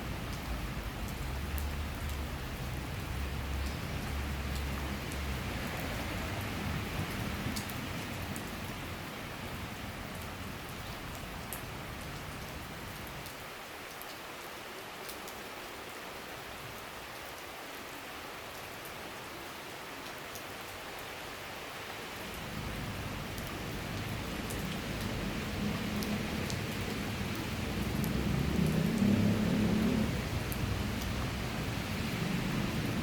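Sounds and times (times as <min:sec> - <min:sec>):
rain falling: 0:00.0 - 0:33.0
raindrop ticks: 0:00.2 - 0:08.8, 0:23.2 - 0:31.5.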